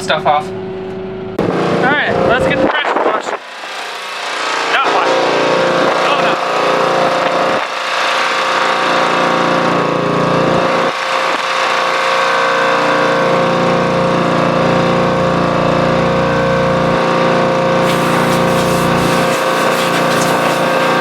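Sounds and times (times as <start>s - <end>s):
engine running steadily: 0.0s - 21.0s.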